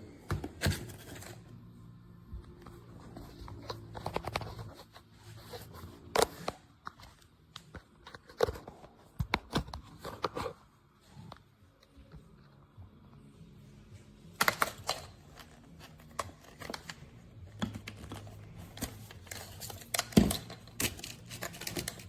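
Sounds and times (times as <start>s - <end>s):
clicks and knocks of handling: 14.4s - 22.0s.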